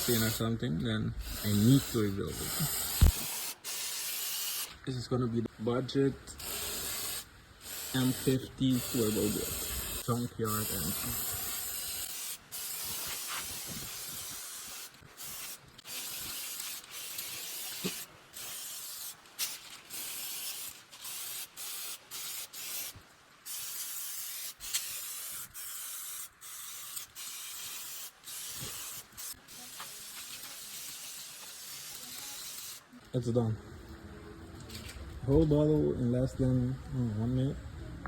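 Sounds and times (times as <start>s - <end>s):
spray bottle hissing: 0.0s - 0.4s, 1.2s - 4.8s, 6.4s - 32.8s.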